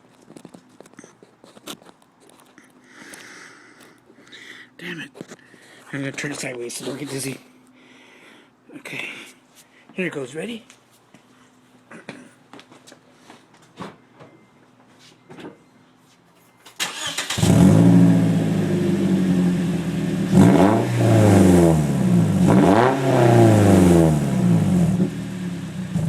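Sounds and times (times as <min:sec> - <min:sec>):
car engine starting and revving: 0:16.8 - 0:26.0.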